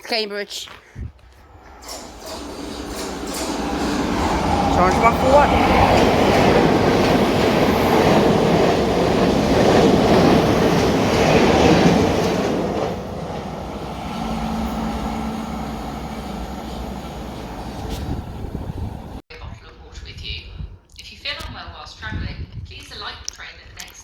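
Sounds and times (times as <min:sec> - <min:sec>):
steady train hum: 0:01.3 - 0:19.2
train wheels clattering over rail joints: 0:01.5 - 0:19.2.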